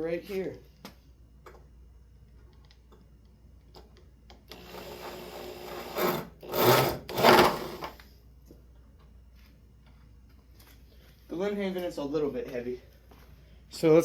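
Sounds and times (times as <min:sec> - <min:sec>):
power drill driving screw into wood: 0:04.5 - 0:08.0.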